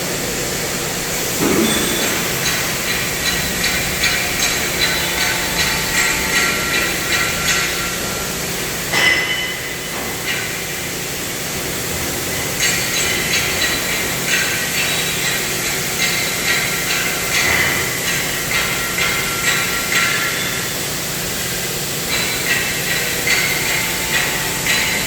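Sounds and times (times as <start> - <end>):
hammer striking steel: 1.4 - 8.2, 8.9 - 10.7, 16.0 - 20.5.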